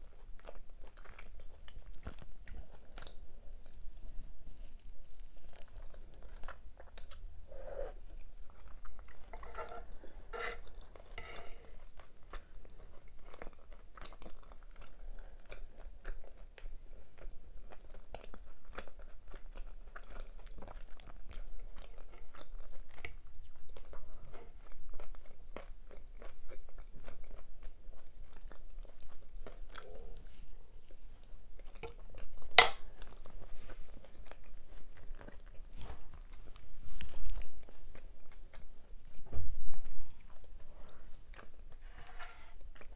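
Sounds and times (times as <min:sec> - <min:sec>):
close chewing with mouth clicks: 0:00.0 - 0:41.8, 0:42.6 - 0:42.9.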